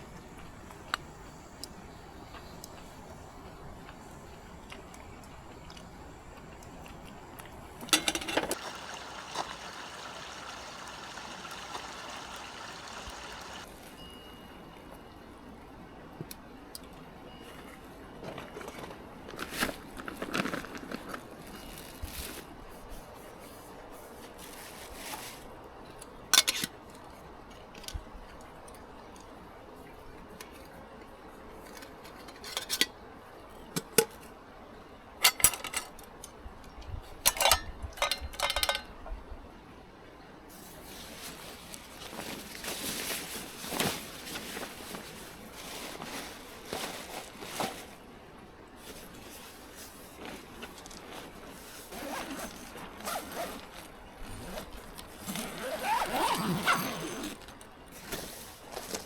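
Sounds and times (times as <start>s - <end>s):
liquid pouring: 8.6s - 13.6s.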